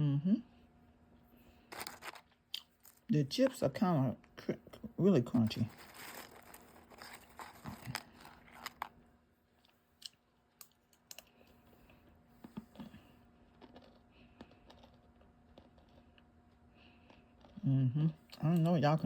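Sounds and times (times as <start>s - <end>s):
tortilla chips crunching: 1.7s - 3.1s, 5.3s - 9.0s, 9.6s - 17.6s.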